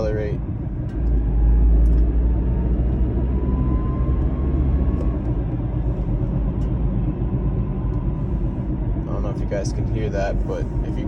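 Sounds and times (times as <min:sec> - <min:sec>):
road and drivetrain rumble: 0:00.0 - 0:11.0.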